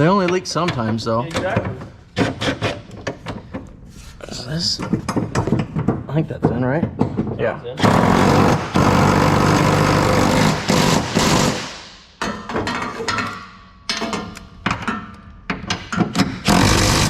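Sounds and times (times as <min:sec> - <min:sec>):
impact wrench rattling: 0:15.7 - 0:17.0.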